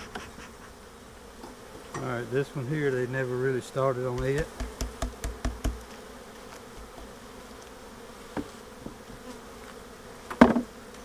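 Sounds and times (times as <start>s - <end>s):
honeybees buzzing: 0.0s - 11.0s
knocks: 4.2s - 5.8s.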